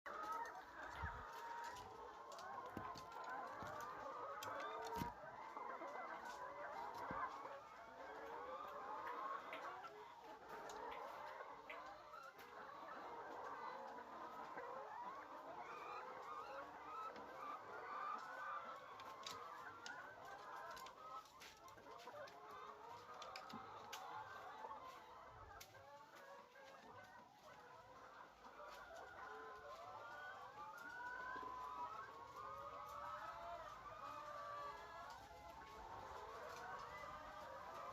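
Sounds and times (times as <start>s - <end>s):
flock of birds chirping: 0.1s - 37.9s.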